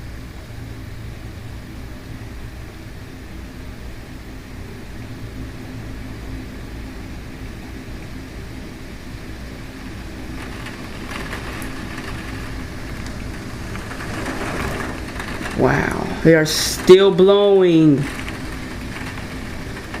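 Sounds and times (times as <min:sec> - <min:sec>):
rain: 0:00.0 - 0:20.0
storm wind gusting: 0:09.2 - 0:20.0.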